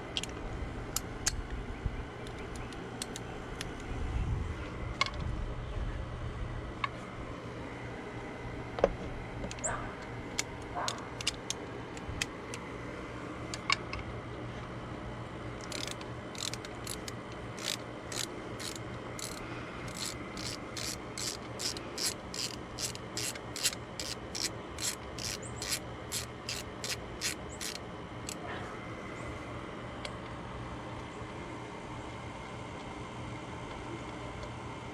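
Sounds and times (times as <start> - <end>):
hand ratchet clicking: 15.6 - 28.4.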